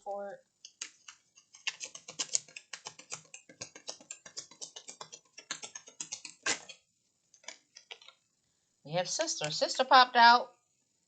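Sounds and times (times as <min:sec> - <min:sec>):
cards being shuffled: 0:00.7 - 0:06.8.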